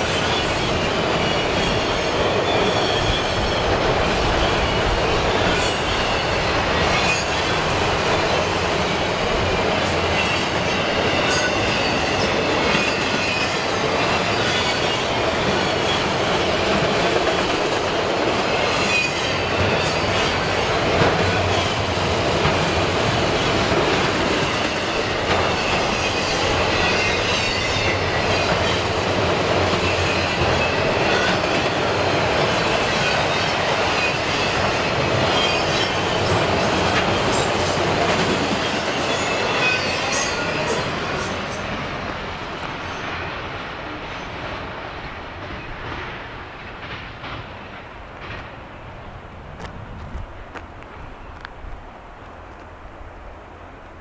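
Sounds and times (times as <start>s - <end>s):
high wheel squeal: 0.0s - 16.5s, 24.4s - 29.0s, 32.7s - 37.7s, 38.5s - 42.0s
train wheels rumbling on rail: 0.0s - 54.0s.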